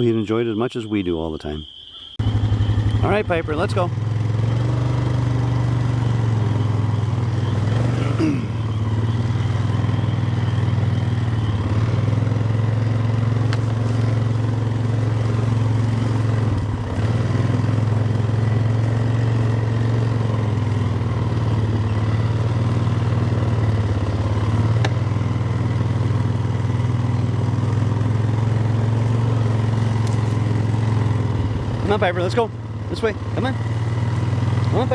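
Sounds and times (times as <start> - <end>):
atv engine running: 2.2 - 34.9.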